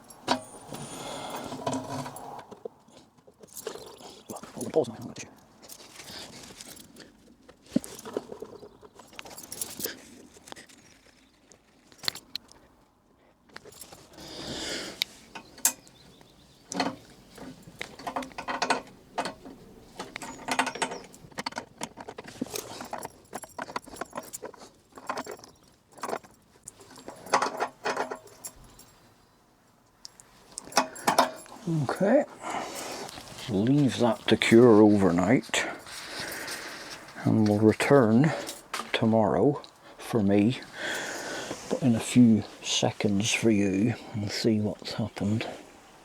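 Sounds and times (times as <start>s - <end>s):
metallic clicks and clinks: 0.0s - 2.6s, 7.8s - 10.1s, 16.7s - 29.1s, 29.9s - 32.1s, 32.7s - 41.8s.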